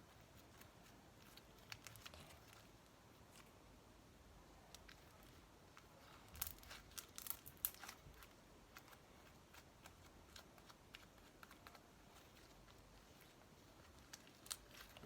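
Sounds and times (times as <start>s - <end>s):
slime clicking and crackling: 4.7s - 15.0s.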